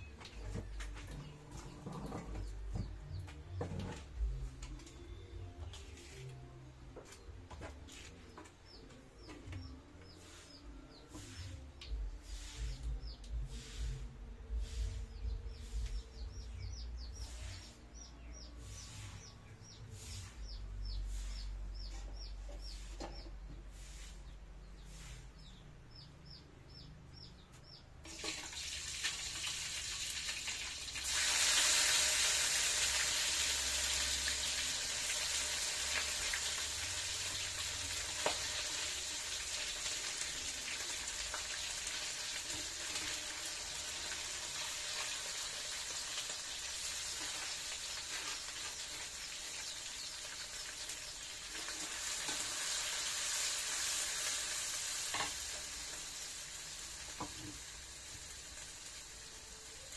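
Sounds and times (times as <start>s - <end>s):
bird chirping: 14.6s - 28.0s
meat sizzling in hot oil: 28.1s - 59.9s.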